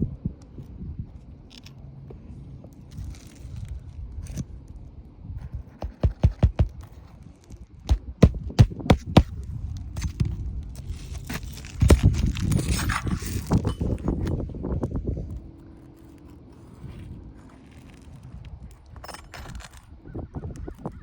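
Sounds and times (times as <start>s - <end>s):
handling sounds: 5.4s - 14.4s
sharp knocks: 5.8s - 6.8s, 7.9s - 9.3s.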